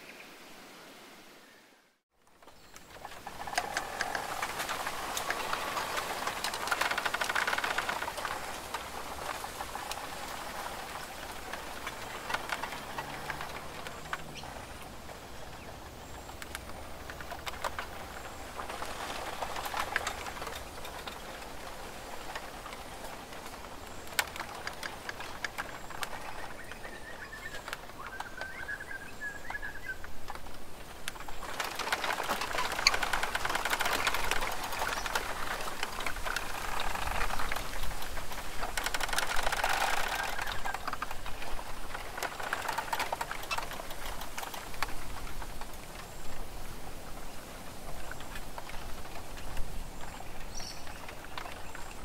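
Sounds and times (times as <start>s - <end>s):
birds tapping at feeder: 2.5s - 21.5s.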